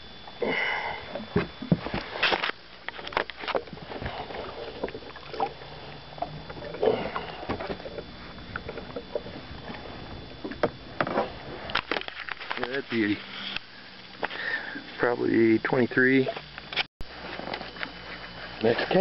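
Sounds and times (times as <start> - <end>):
water splashing against boat: 1.2 - 13.4
clicks and knocks from boat: 6.3 - 9.8, 10.4 - 12.8.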